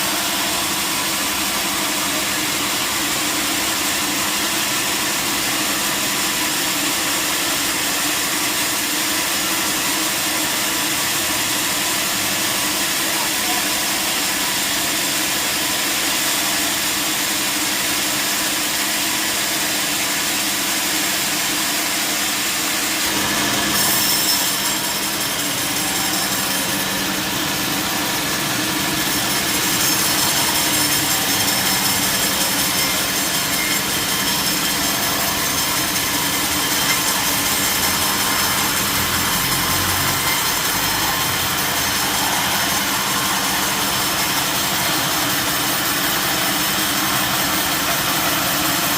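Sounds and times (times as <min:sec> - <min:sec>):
sawmill saw cutting log: 0:00.0 - 0:48.9
higher cutting noise: 0:23.0 - 0:48.9.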